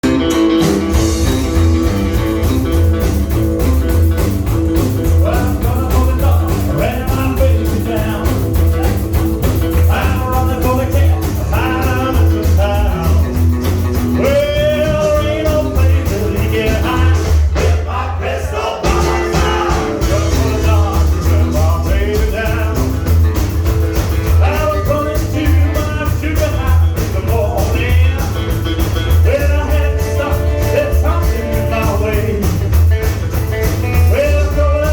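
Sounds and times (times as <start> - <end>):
rock and roll band playing: 0.0 - 34.9
person singing: 5.0 - 13.5, 14.1 - 23.3, 24.3 - 32.7, 33.9 - 34.9.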